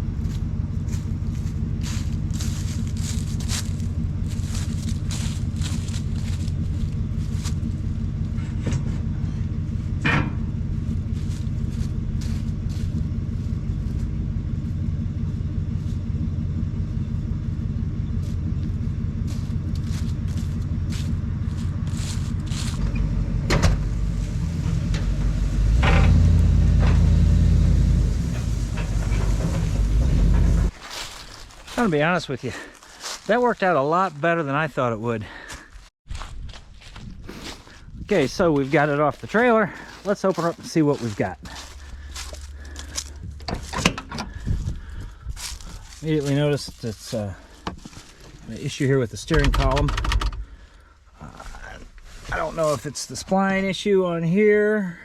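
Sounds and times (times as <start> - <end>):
vehicle engine running: 0.0 - 55.0
metallic clicks and knocks: 49.3 - 50.5.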